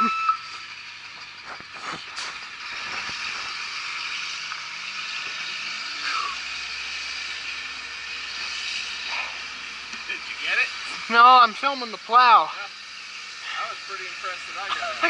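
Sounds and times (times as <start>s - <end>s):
rattles and clatters: 0.4s - 5.8s
snow plow rushing hiss: 0.5s - 15.0s.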